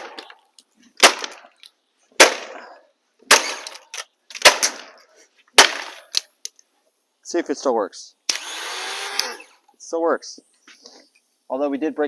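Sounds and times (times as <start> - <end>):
hard cracking blows on plastic: 1.0 - 1.5, 2.2 - 2.6.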